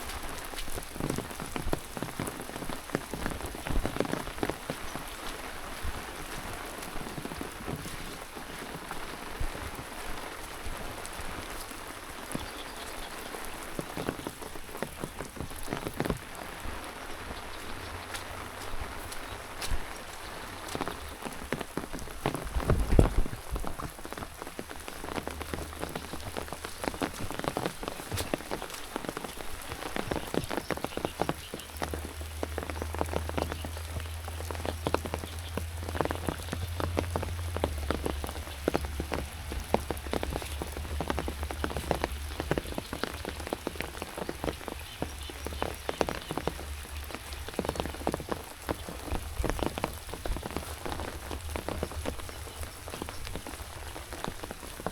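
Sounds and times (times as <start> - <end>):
rain falling: 0.0 - 54.9.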